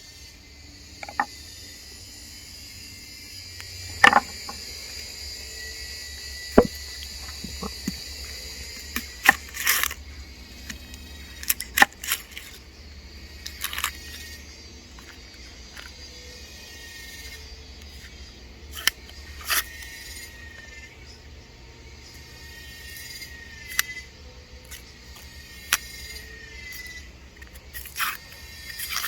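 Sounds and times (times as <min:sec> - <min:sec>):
insects droning: 0:00.0 - 0:29.0
cooking gear clattering: 0:03.9 - 0:04.6.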